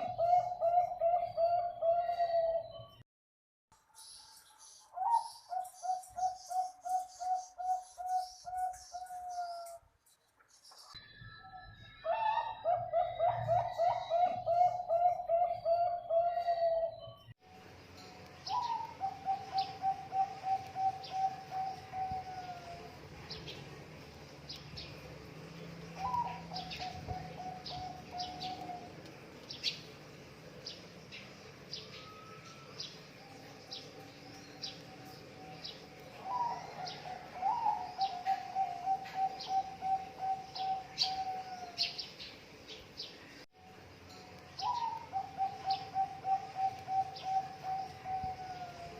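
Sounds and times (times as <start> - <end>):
doves cooing: 0.0 - 2.7, 12.0 - 17.0, 18.5 - 23.1, 25.9 - 29.8, 36.2 - 42.1, 44.6 - 48.9
small birds chirping: 3.9 - 12.1, 18.1 - 43.5, 44.3 - 48.9.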